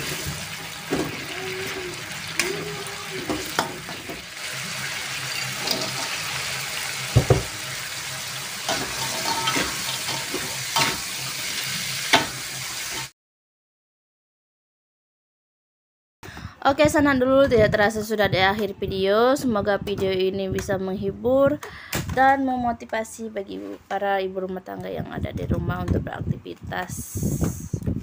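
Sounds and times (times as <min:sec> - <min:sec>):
food sizzling in hot oil: 0:00.0 - 0:13.1
metal spatula scraping a wok: 0:04.9 - 0:06.6, 0:08.6 - 0:11.1
sharp knocks on pan: 0:07.1 - 0:07.6.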